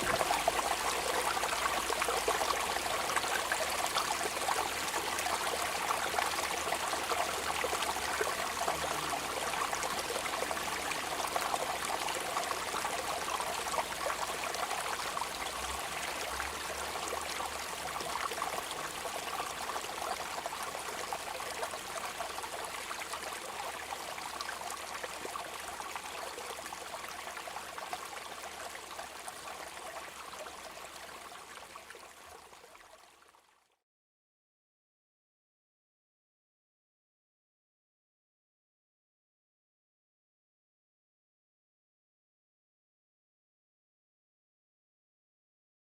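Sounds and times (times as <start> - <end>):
steady rain: 0.0 - 19.7
trickling water: 0.0 - 33.8.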